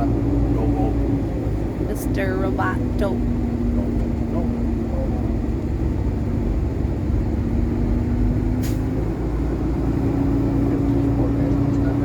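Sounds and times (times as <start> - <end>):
diesel truck engine hum: 0.0 - 12.0.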